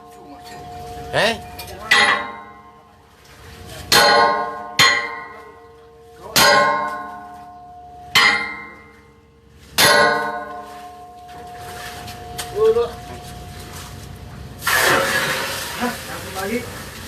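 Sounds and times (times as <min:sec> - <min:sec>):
hammer striking metal ringing: 0:00.0 - 0:02.9, 0:03.9 - 0:05.6, 0:06.3 - 0:09.2, 0:09.8 - 0:11.5.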